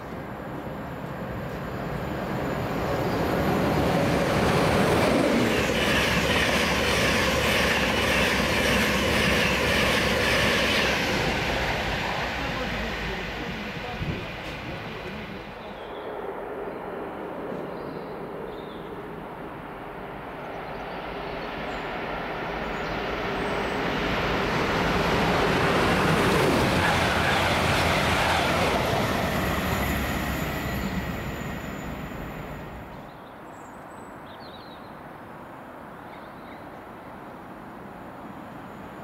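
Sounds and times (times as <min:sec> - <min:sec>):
train passing on rails: 0:00.0 - 0:39.0.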